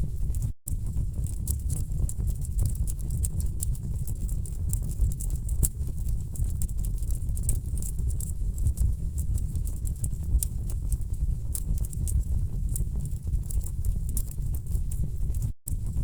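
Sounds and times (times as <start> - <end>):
low rumble of flames: 0.0 - 16.0.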